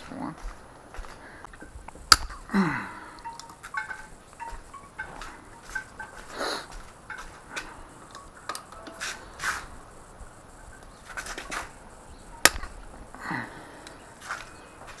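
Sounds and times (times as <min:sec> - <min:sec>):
tools and engine parts clicking: 0:00.4 - 0:15.0
sharp loud click: 0:02.1 - 0:02.5, 0:12.4 - 0:12.8.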